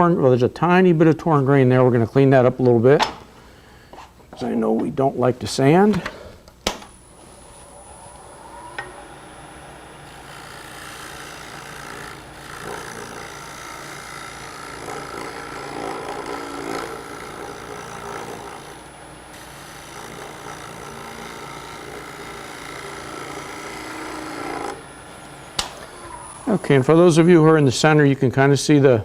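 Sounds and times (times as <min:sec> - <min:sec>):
lathe tool scraping wood: 0:07.0 - 0:27.5.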